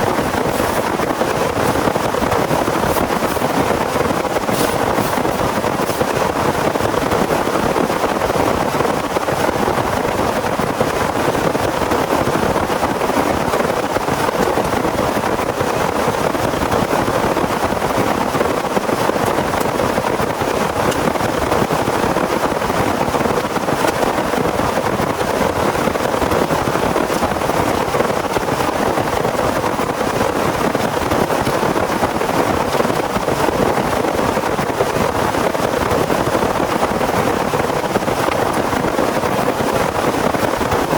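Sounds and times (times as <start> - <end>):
heavy rain falling: 0.0 - 8.6.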